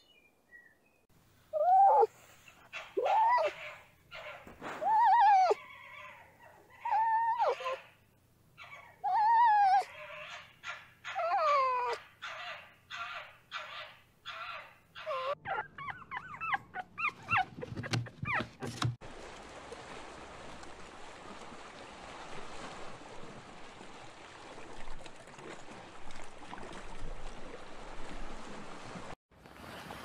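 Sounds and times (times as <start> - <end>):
fox whining and yipping: 1.6 - 8.0, 8.6 - 18.9.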